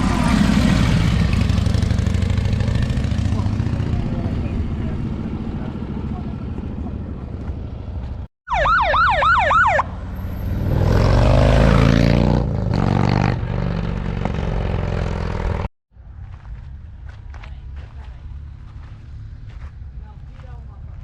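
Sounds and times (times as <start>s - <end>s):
engine revving: 0.0s - 7.5s, 9.7s - 15.7s
siren wailing: 8.5s - 10.0s.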